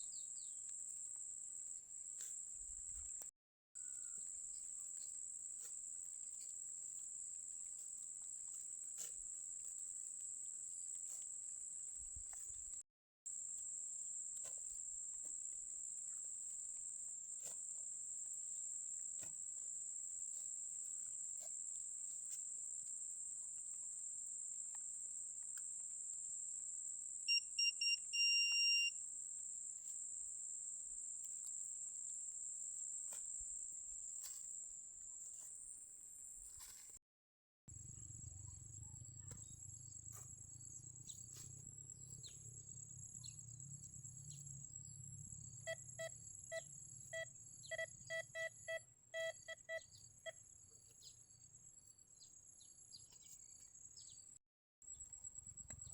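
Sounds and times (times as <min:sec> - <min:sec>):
metal detector beeping: 0:27.3 - 0:28.9, 0:45.6 - 0:50.4.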